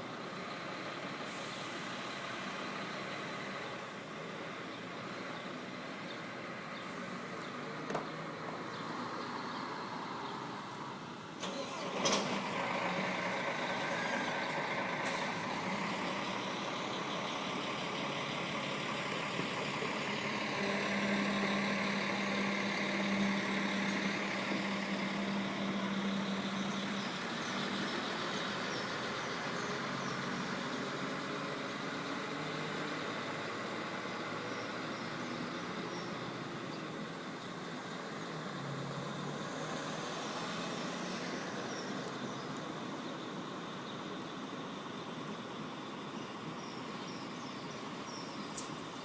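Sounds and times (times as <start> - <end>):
diesel coach engine idling: 11.0 - 49.0.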